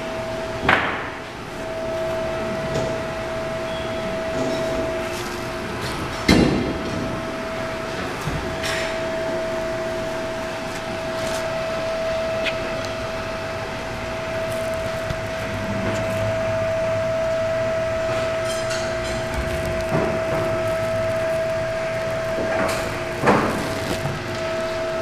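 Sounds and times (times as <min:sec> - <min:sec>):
machine hum: 0:00.0 - 0:25.0.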